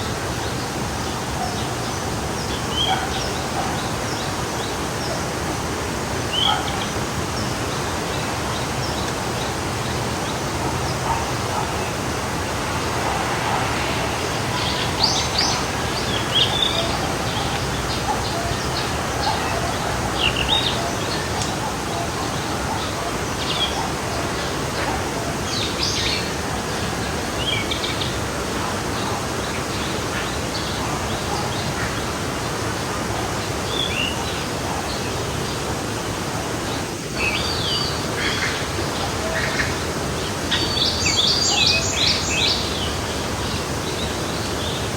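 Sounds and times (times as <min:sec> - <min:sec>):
stream flowing: 0:00.0 - 0:44.9
birds chirping and calling: 0:08.5 - 0:24.1.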